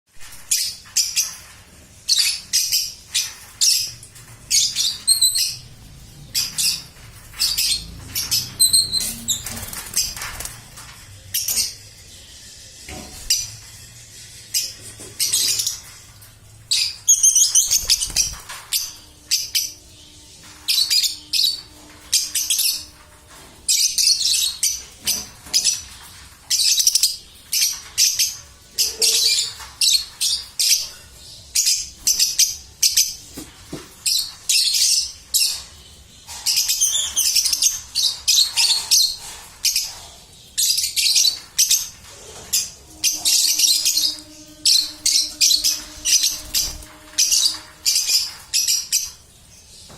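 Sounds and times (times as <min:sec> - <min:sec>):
baby birds chirping: 0:42.6 - 0:49.2.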